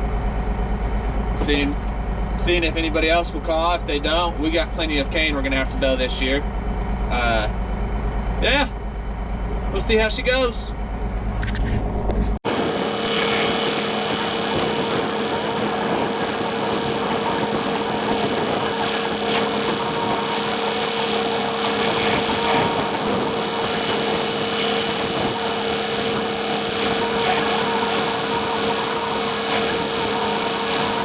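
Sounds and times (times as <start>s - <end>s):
tractor engine hum: 12.4s - 31.0s.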